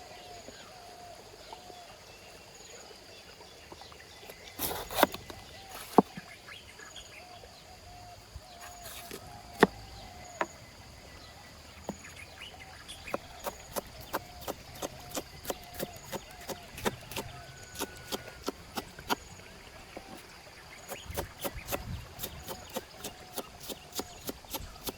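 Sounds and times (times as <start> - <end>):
faint birds calling: 4.0 - 24.9
knife chopping on cutting board: 13.1 - 19.2, 19.9 - 24.9.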